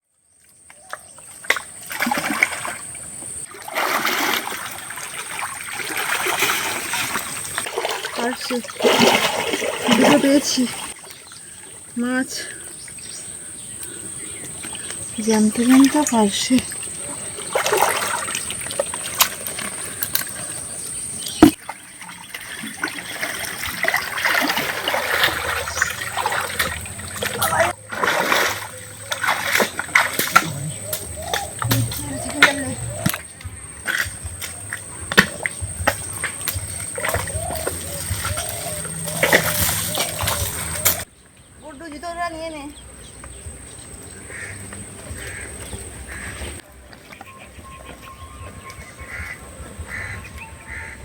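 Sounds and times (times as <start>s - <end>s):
water splashing: 1.2s - 13.4s, 14.4s - 41.1s.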